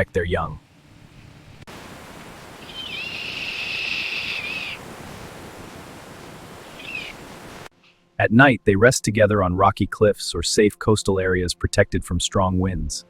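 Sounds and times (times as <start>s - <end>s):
steady background hiss: 0.0s - 8.5s
high wavering animal cry: 2.5s - 5.0s, 6.4s - 7.4s.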